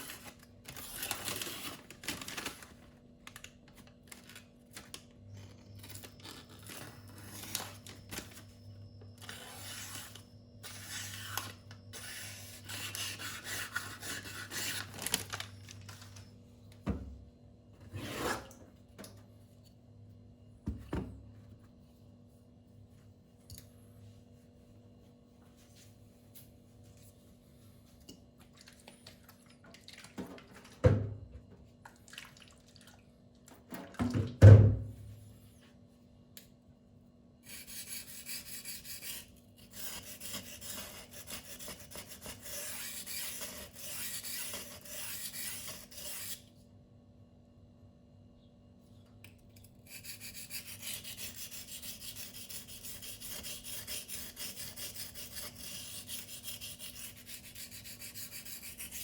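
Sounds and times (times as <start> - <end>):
knife scraping on sharpening stone: 37.5 - 46.4.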